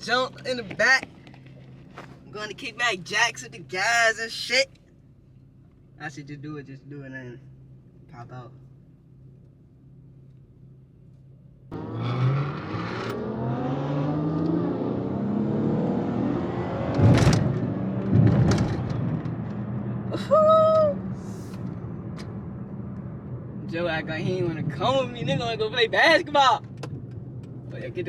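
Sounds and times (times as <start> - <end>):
car engines revving: 11.7 - 28.0.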